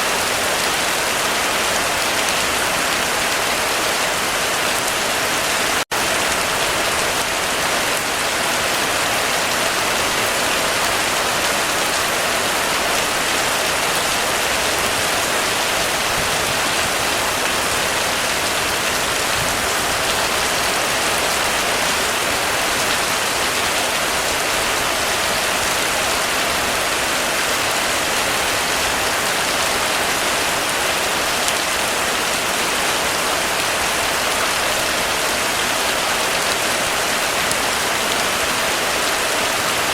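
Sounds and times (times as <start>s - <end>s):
heavy rain on a roof: 0.0s - 39.9s.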